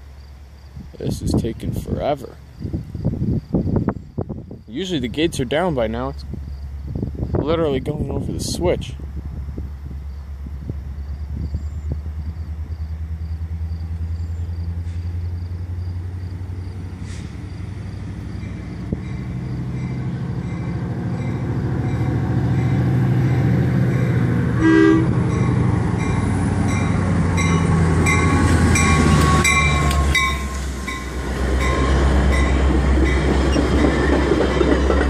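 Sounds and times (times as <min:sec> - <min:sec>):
locomotive engine rumble: 0:00.0 - 0:35.0
train horn blast: 0:24.4 - 0:25.5, 0:27.4 - 0:30.7
train wheels clattering: 0:25.1 - 0:35.0.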